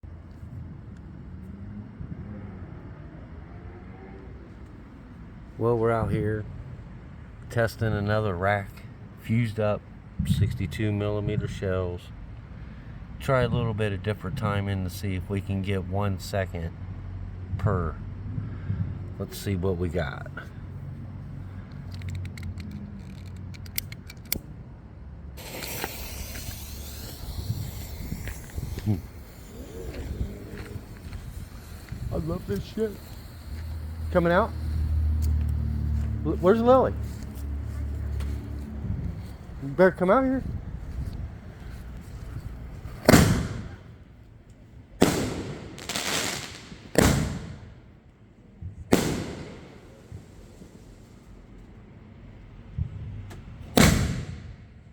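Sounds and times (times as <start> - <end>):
sharp clicks: 21.9 - 24.5
firework shells booming: 25.4 - 35.3, 42.9 - 44.0, 45.0 - 47.9, 48.9 - 50.8, 53.8 - 54.6
fuse hissing: 25.4 - 36.7.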